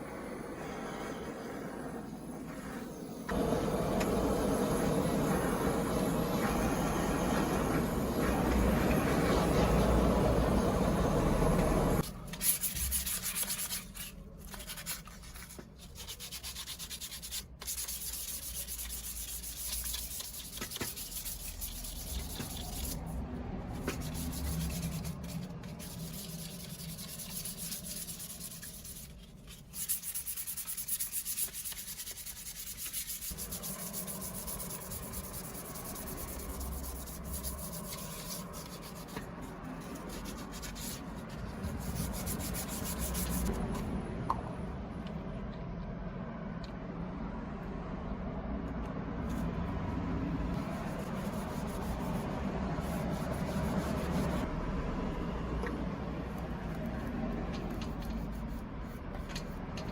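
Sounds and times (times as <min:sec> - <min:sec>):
hand sanding: 0:02.6 - 0:23.2, 0:23.8 - 0:43.6, 0:50.5 - 0:54.5, 0:57.7 - 0:59.9.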